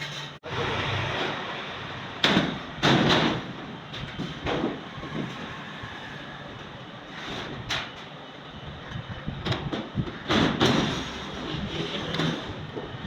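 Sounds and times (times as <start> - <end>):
sheet steel clattering and scraping: 0.0 - 1.6, 2.2 - 8.2, 8.9 - 13.0
loud metal crashes: 2.2 - 5.4, 10.2 - 11.5.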